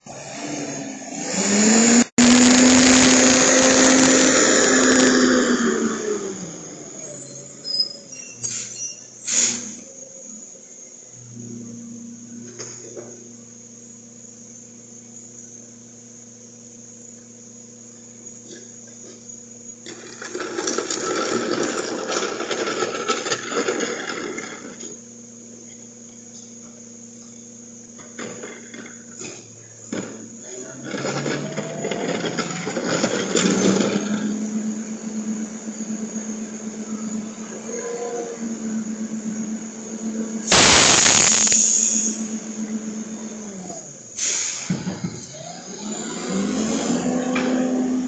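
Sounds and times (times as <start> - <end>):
garbage truck engine revving: 0.0 - 10.0, 19.8 - 25.1, 28.0 - 48.0.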